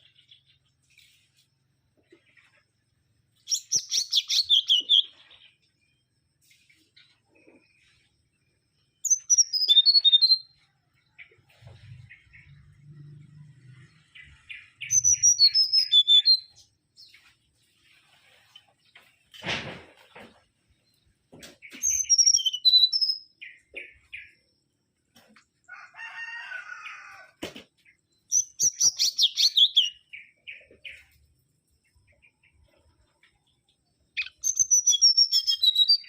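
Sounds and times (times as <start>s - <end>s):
bird whistling song: 3.4s - 5.5s, 9.0s - 10.6s, 14.3s - 17.2s, 21.7s - 24.4s, 28.3s - 31.1s, 34.1s - 36.0s
thump: 19.3s - 20.5s.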